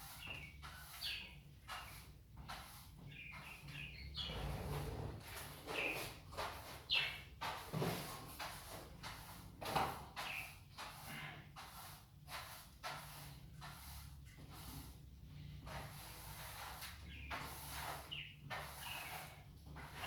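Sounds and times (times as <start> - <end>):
cages scraping and knocking: 3.7 - 6.3.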